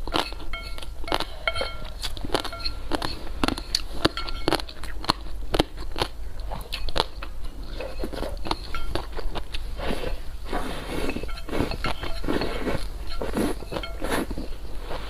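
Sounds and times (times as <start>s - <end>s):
person chewing and biting: 0.0s - 15.0s.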